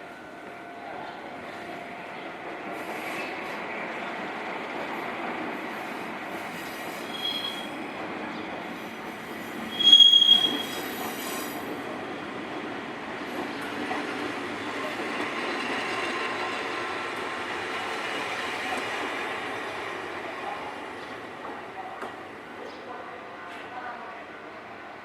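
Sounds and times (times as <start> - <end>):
high-pitched wheel squeal: 7.0 - 7.8, 9.7 - 11.5.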